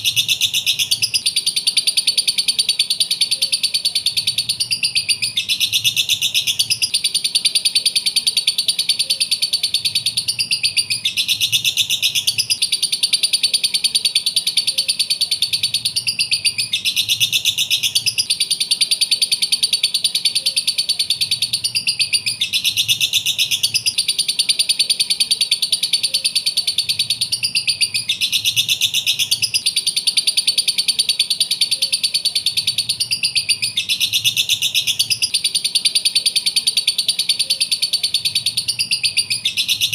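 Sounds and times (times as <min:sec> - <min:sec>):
lovebird chattering: 0:00.0 - 0:39.9.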